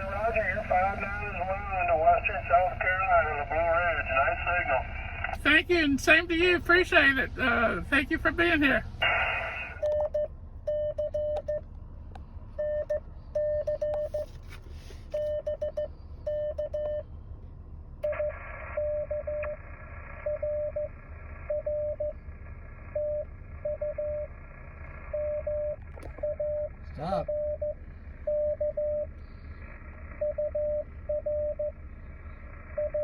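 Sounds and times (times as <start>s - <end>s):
radio receiver hiss: 9.0s - 9.9s
morse code beeps: 9.8s - 11.6s, 12.6s - 14.4s, 15.1s - 17.0s, 18.0s - 19.6s, 20.2s - 20.9s, 21.5s - 22.2s, 23.0s - 24.3s, 25.1s - 29.1s, 30.2s - 31.8s, 32.8s - 33.0s.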